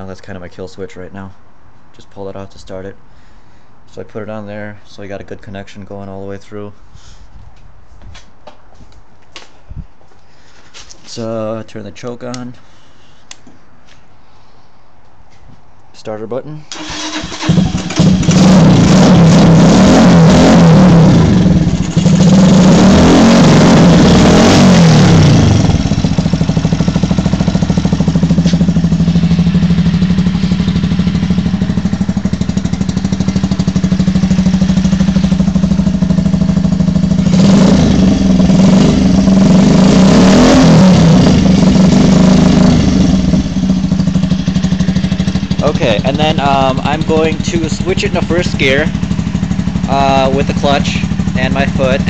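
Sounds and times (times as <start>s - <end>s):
motorcycle engine revving and idling: 16.8s - 52.0s.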